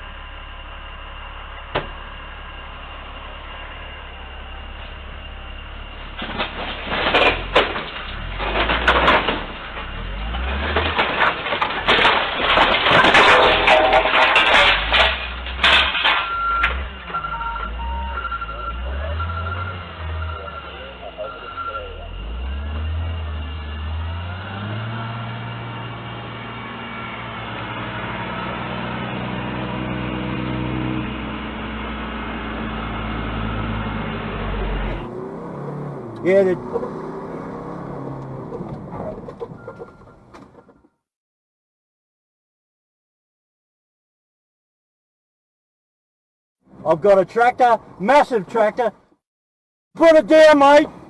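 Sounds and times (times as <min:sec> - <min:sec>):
vehicle engine running: 0:00.0 - 0:08.0
engine and road rumble: 0:00.0 - 0:41.1, 0:46.6 - 0:49.2, 0:50.0 - 0:51.0
crunching vehicle impacts: 0:04.6 - 0:25.2, 0:31.5 - 0:41.0.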